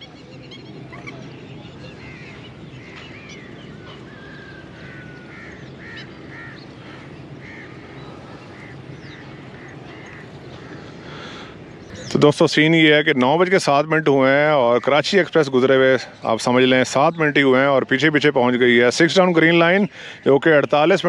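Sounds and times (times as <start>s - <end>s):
steady low hum: 0.0s - 12.4s
small birds chirping and whistling: 0.0s - 18.3s
birds honking: 0.0s - 21.0s.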